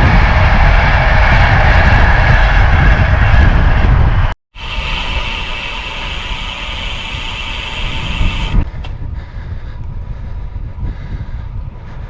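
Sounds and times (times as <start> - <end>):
bicycle wheels rolling roar: 0.0 - 12.0
high hissing whirr: 4.6 - 8.6.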